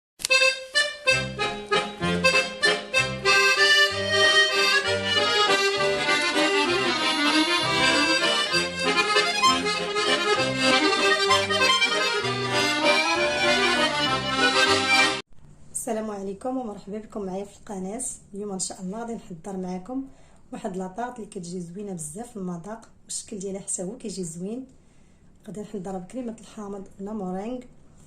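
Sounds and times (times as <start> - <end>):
accordion intro music: 0.2 - 15.2
rhythmic bass line: 1.0 - 15.2.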